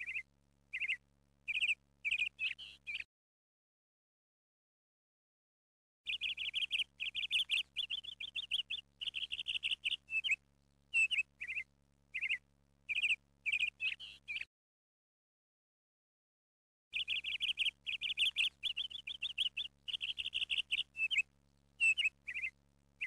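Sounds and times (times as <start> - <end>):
songbird chirping and trilling: 0.0 - 3.1, 6.1 - 14.5, 17.0 - 23.0.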